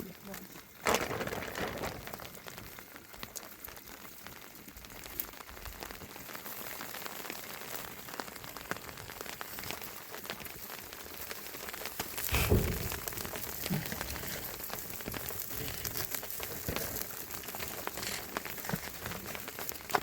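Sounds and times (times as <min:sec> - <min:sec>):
light rain patter: 0:00.0 - 0:20.0
low thump: 0:12.3 - 0:13.2.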